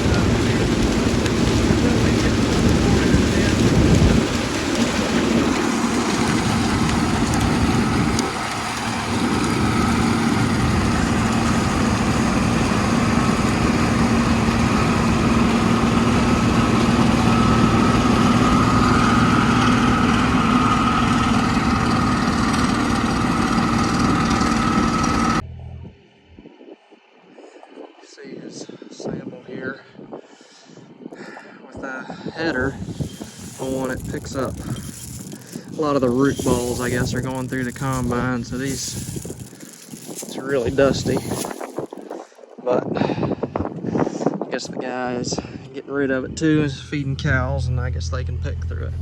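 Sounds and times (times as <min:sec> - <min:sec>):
combine harvester engine drone: 0:00.0 - 0:25.9, 0:32.3 - 0:42.1, 0:46.2 - 0:49.0
steady whine: 0:00.0 - 0:27.3, 0:32.3 - 0:42.3, 0:45.1 - 0:49.0.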